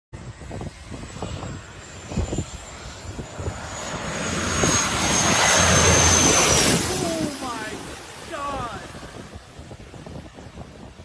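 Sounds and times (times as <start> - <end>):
aircraft engine running: 0.2 - 11.0
high-pitched whine: 0.9 - 9.1.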